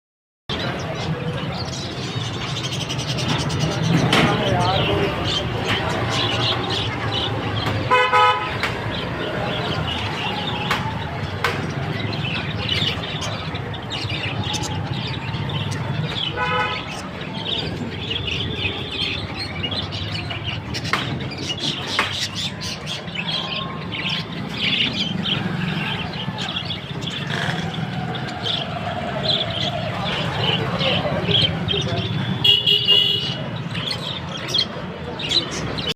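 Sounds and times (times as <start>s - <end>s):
birds chirping and chattering: 0.5s - 35.9s
street traffic: 0.5s - 35.9s
vehicle horn honking: 7.9s - 8.6s, 16.4s - 16.9s, 32.4s - 33.4s.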